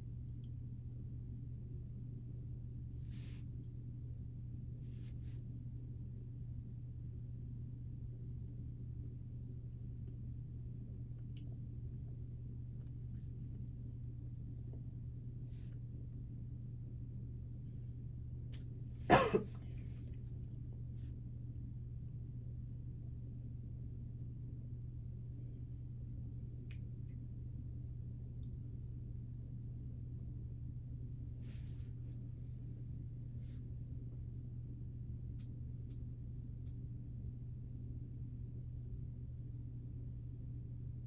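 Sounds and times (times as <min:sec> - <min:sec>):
steady low hum: 0:00.0 - 0:41.0
soft rustle: 0:31.4 - 0:32.3.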